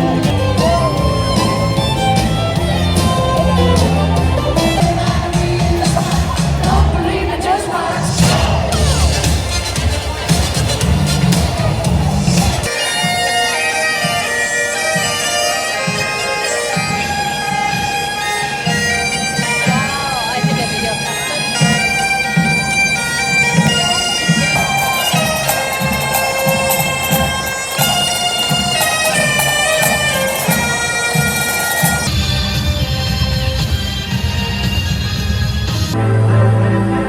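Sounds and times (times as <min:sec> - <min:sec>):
bagpipes playing melody: 0:00.0 - 0:06.7, 0:08.8 - 0:37.0
drum beat: 0:00.0 - 0:13.2, 0:23.5 - 0:34.5.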